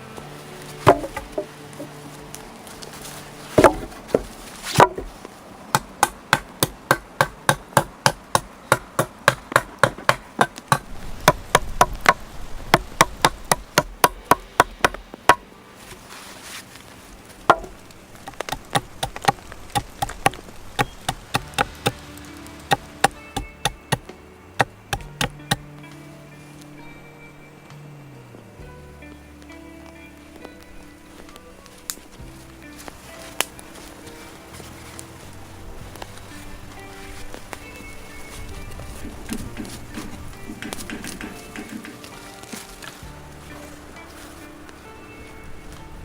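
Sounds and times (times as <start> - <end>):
hand tool striking wood: 0.8 - 2.2, 3.6 - 15.4, 17.5 - 25.7, 39.0 - 43.8.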